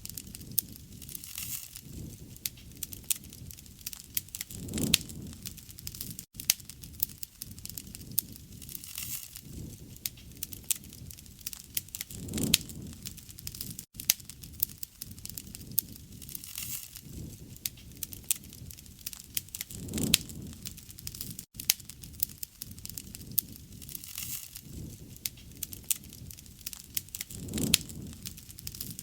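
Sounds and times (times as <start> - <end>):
low rush of flame: 0.0 - 29.0
wood fire crackling and popping: 0.0 - 29.0.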